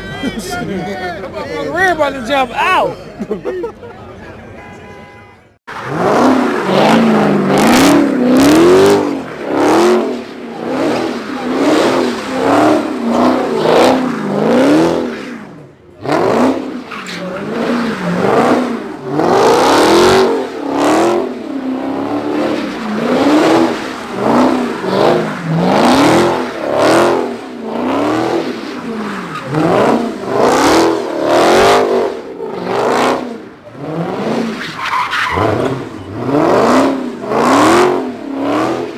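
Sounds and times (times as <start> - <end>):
car engine revving hard: 5.7 - 38.9.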